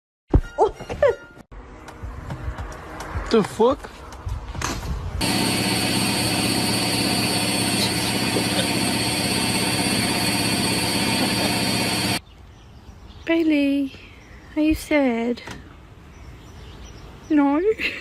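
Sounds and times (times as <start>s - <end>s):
motor running evenly: 5.2s - 12.2s.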